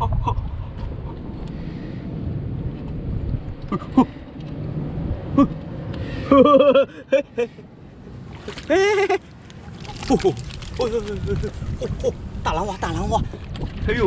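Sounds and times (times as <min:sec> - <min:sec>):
wind buffeting microphone: 0:00.0 - 0:06.0, 0:08.1 - 0:14.0
waves on rocky shore: 0:08.2 - 0:11.8.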